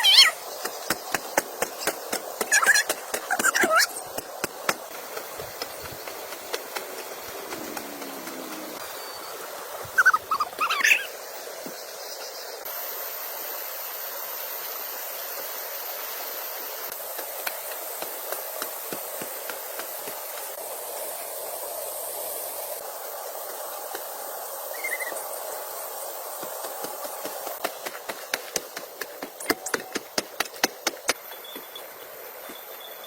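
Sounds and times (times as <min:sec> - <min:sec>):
steady rain falling: 0:04.1 - 0:09.8.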